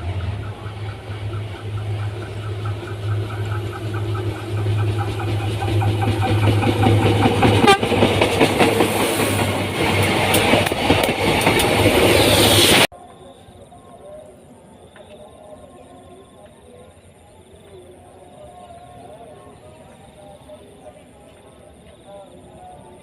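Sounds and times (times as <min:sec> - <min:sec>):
train wheels clattering on rails: 0:00.0 - 0:12.9
train engine hum: 0:00.0 - 0:23.0.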